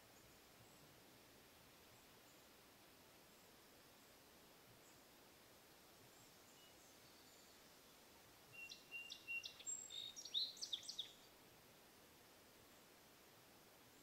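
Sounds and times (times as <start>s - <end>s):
songbird singing: 0.0s - 1.0s, 1.7s - 5.2s, 5.9s - 11.4s
faint steady hiss: 0.0s - 14.0s.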